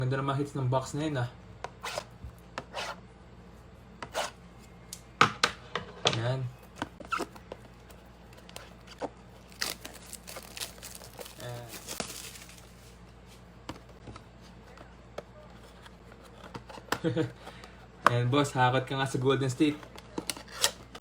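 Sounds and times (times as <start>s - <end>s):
plastic wrapping tearing: 9.4s - 13.0s.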